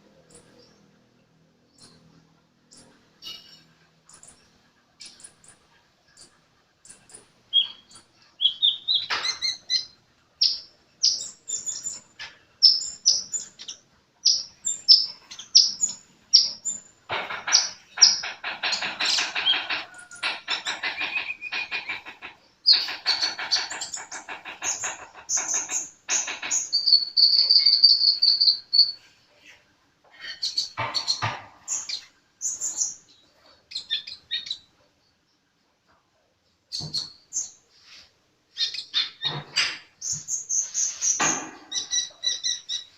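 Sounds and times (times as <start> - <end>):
bird chirping and trilling: 6.9 - 29.1, 30.2 - 34.7, 38.5 - 42.9.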